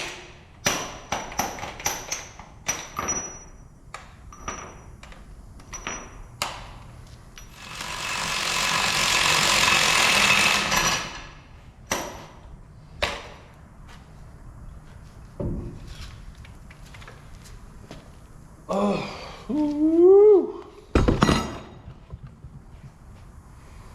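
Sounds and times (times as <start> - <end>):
tools knocking and clicking: 0.6 - 6.7.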